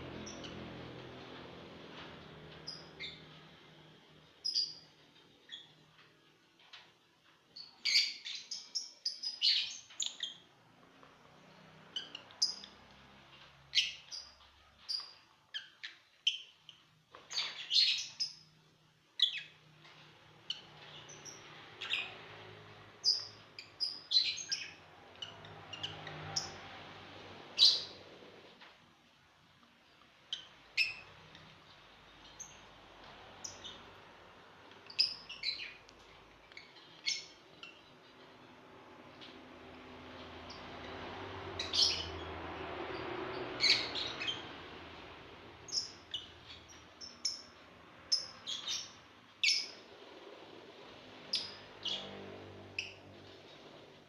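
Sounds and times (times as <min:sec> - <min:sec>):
lovebirds chirping: 0:02.5 - 0:05.8, 0:07.6 - 0:10.5, 0:11.4 - 0:18.6, 0:19.2 - 0:26.8, 0:30.1 - 0:38.6, 0:40.1 - 0:44.8, 0:45.6 - 0:49.9.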